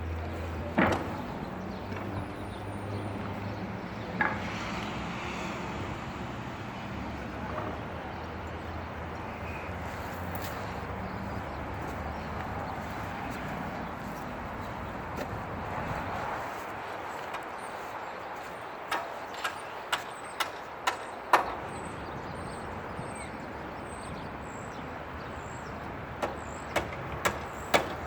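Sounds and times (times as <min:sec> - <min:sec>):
sharp knocks: 0:00.7 - 0:01.3, 0:26.2 - 0:28.0.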